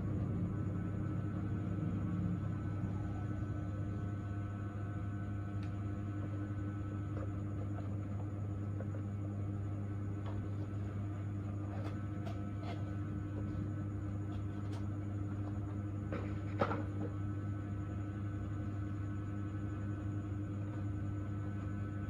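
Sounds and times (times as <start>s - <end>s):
dental equipment humming: 0.0s - 22.0s.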